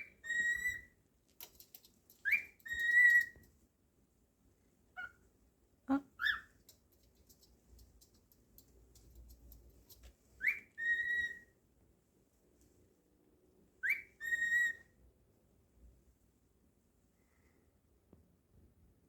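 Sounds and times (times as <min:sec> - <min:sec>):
cockatiel whistling: 0:00.0 - 0:00.9, 0:02.2 - 0:03.4, 0:10.4 - 0:11.5, 0:13.8 - 0:14.9
faint light ticks: 0:01.3 - 0:03.6, 0:06.6 - 0:10.5.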